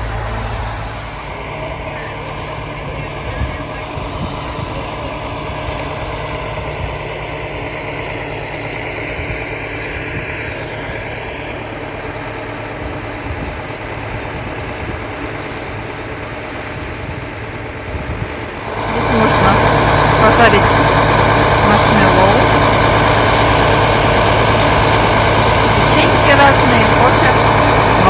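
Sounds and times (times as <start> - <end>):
constant noise: 0.0 - 28.0
locomotive engine idling: 0.0 - 28.0.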